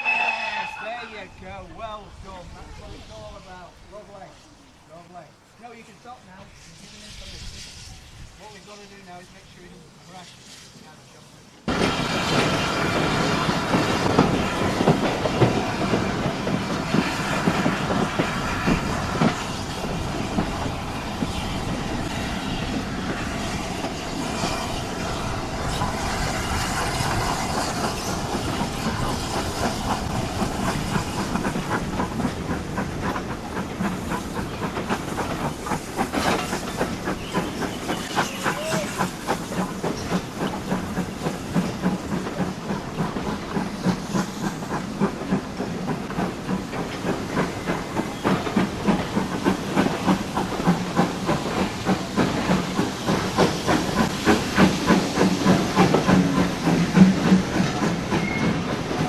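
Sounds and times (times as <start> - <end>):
train rumbling with steam hiss: 0.0 - 59.0
wheels clicking over rail joints: 26.8 - 59.0.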